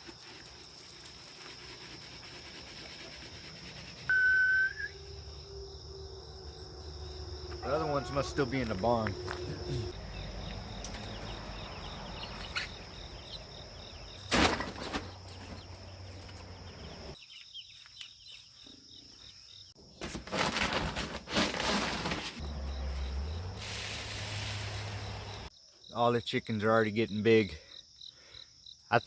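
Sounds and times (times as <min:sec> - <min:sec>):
insects chirping: 0:00.0 - 0:29.0
rustling and handling noise: 0:20.0 - 0:22.4.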